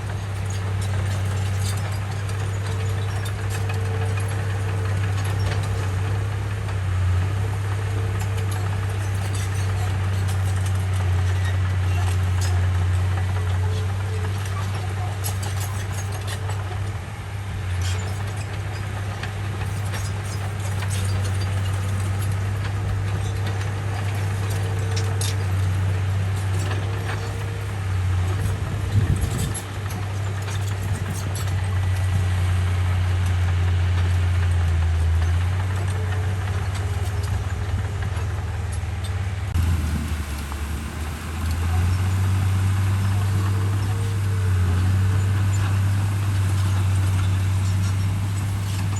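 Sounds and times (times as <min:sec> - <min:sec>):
bulldozer diesel engine drone: 0:00.0 - 0:48.9
metal clanks and clicks: 0:17.7 - 0:32.2.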